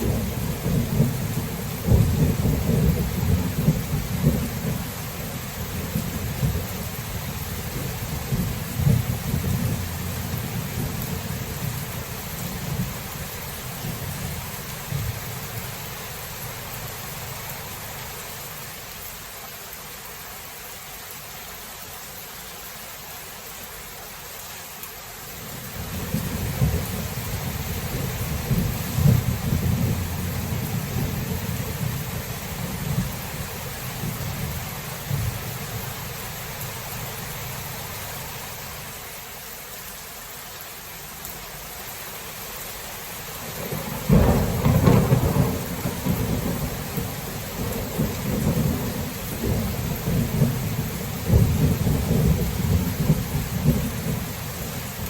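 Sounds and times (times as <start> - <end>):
rolling thunder rumbling: 0.0 - 15.8, 25.8 - 36.6, 43.6 - 55.0
rain hissing: 0.0 - 55.0.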